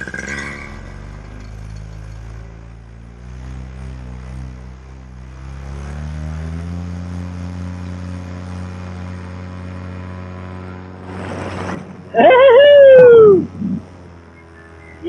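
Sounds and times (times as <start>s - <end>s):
paramotor engine throttling up: 0.0s - 15.0s.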